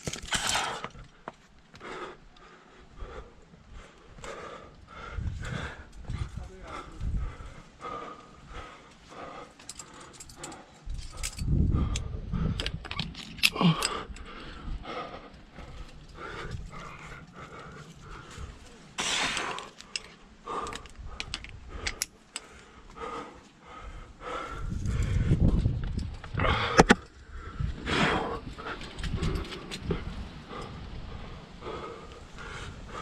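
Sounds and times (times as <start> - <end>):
climbing gear clinking: 0.0 - 1.2, 9.4 - 14.7, 15.3 - 22.6, 28.3 - 30.8
person breathing hard: 0.3 - 12.8, 13.4 - 33.0.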